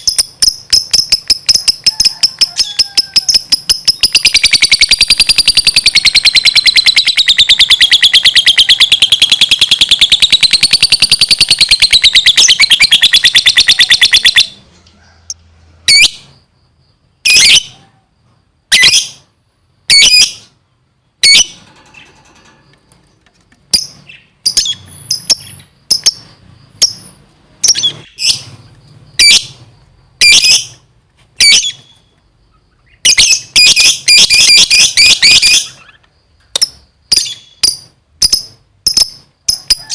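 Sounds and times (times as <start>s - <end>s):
lovebird chattering trill: 0.0s - 14.6s, 31.4s - 39.9s
sharp high bird chirps: 0.0s - 14.8s, 18.7s - 23.0s, 23.6s - 39.9s.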